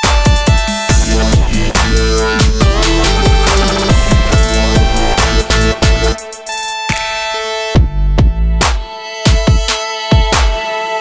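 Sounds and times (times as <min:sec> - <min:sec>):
electronic music with bass beat: 0:00.0 - 0:10.8.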